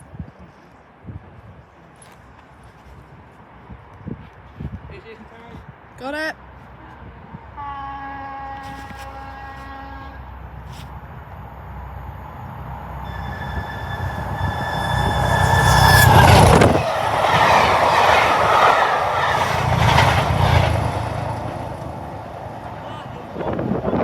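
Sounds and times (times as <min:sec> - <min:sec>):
train carriages rushing past: 0:10.3 - 0:24.0
high whine: 0:11.3 - 0:22.9.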